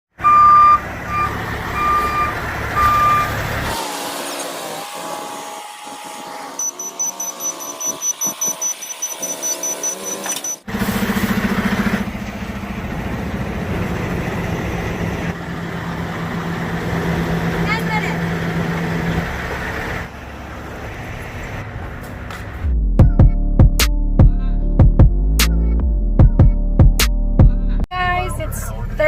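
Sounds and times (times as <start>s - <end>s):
truck reversing alarm beeping: 0.2s - 19.3s
truck engine running: 0.2s - 27.0s.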